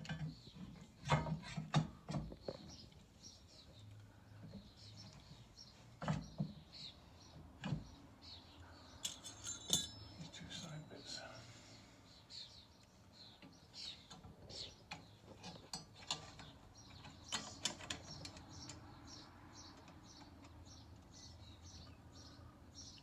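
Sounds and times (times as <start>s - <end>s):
tools and metal parts clicking: 9.0s - 10.2s.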